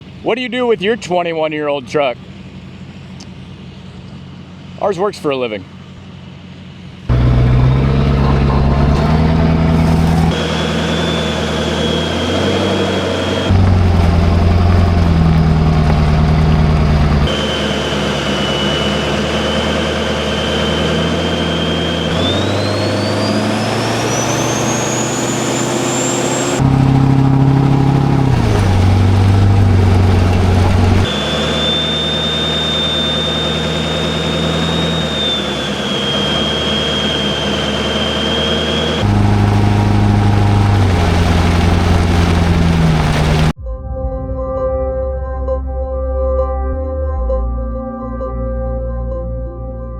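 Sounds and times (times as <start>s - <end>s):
diesel truck engine drone: 0.0s - 49.9s
turbo whistle: 7.4s - 28.2s, 30.3s - 40.9s.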